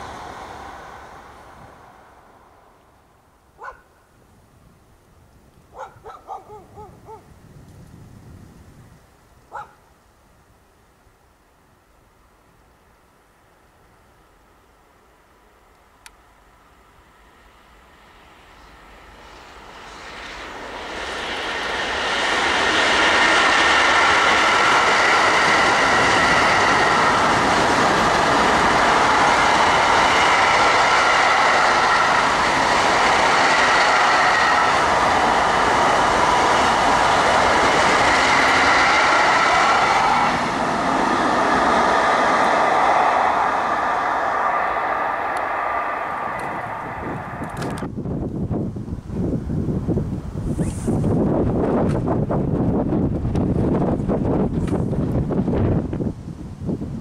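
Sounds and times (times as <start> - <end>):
train wheels on rails: 0.0 - 3.8, 15.5 - 56.2
high-pitched wheel squeal: 43.7 - 47.6.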